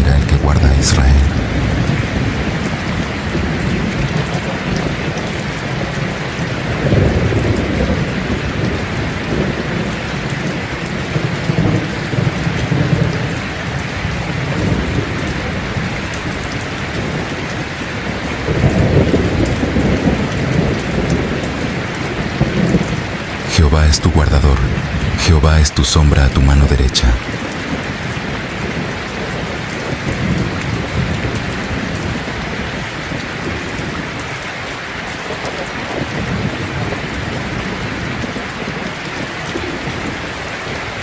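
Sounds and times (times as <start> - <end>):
thunder rumbling: 0.0 - 5.2
steady rain falling: 0.0 - 41.0.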